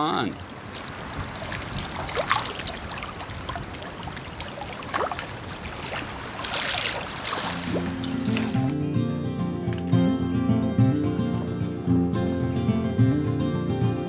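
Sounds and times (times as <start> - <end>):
small waves lapping: 0.0 - 8.8, 9.4 - 10.3
acoustic guitar music: 7.5 - 14.0.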